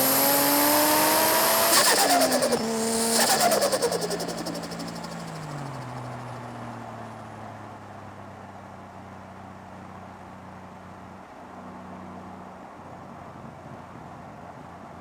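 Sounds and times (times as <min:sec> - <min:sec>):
car engine idling: 0:00.0 - 0:06.5.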